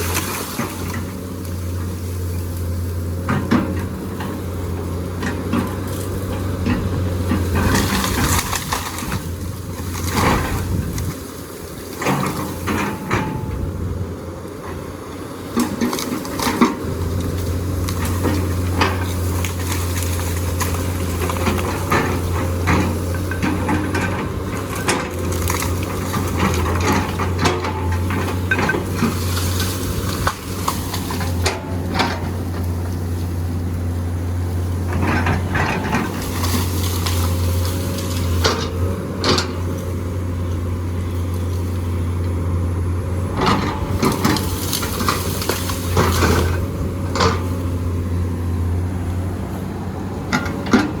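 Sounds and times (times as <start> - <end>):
excavator diesel engine droning: 0.0 - 51.0
bucket scraping and clanking on rock: 5.2 - 11.2, 15.6 - 33.4, 34.8 - 39.7, 43.3 - 47.6.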